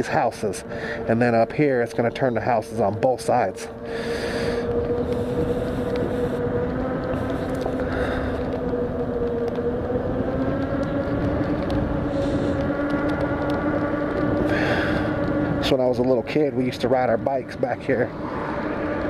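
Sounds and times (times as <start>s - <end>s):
wind on microphone: 0.0s - 19.0s
electric motor whining: 2.4s - 16.4s.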